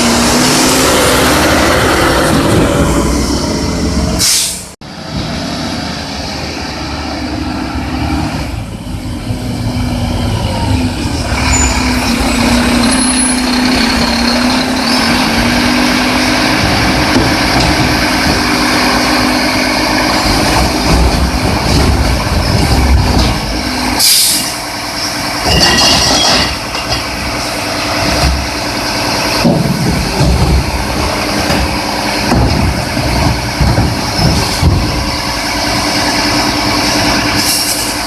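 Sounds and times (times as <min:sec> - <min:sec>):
garbage truck engine running: 0:00.0 - 0:38.0
air brake hiss: 0:04.2 - 0:04.7, 0:24.0 - 0:24.6, 0:37.4 - 0:38.0.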